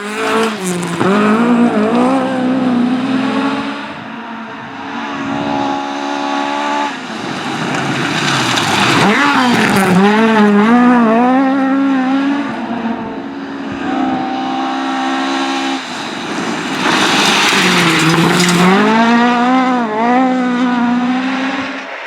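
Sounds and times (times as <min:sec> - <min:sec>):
rally car engine revving: 0:00.0 - 0:22.0
loud rush of noise: 0:15.0 - 0:19.5.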